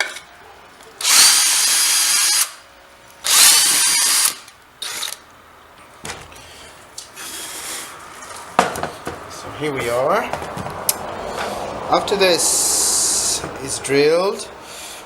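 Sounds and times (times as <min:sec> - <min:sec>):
electric drill boring: 0:01.0 - 0:02.6, 0:03.3 - 0:05.2.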